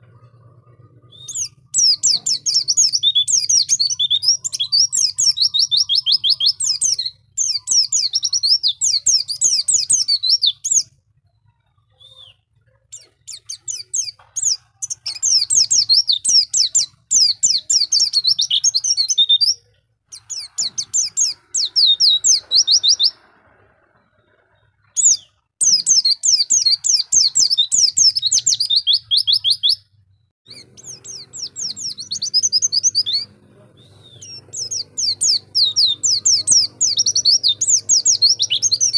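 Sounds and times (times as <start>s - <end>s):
faint low hum: 0.0s - 7.4s, 29.8s - 38.9s
bird twittering high notes: 0.0s - 10.9s, 13.0s - 23.4s, 30.5s - 33.3s, 33.9s - 38.9s.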